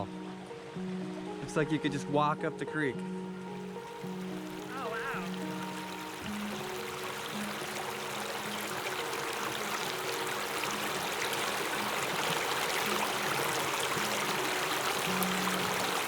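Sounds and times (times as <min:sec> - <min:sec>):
creek flowing over bedrock: 0:03.4 - 0:16.0.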